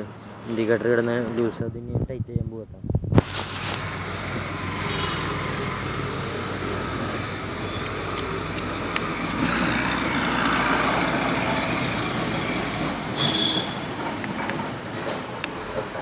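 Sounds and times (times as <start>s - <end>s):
motor vehicle engine: 3.2s - 16.0s.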